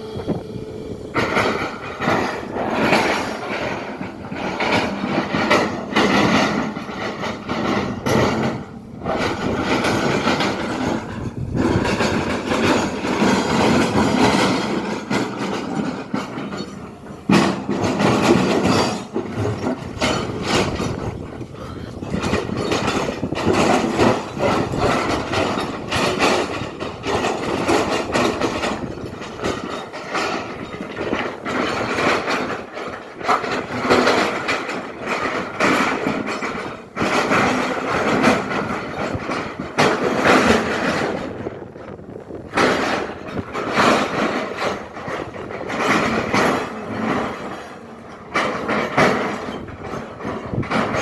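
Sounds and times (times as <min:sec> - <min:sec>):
excavator bucket clanking: 0:00.0 - 0:51.0
excavator engine under load: 0:00.0 - 0:51.0.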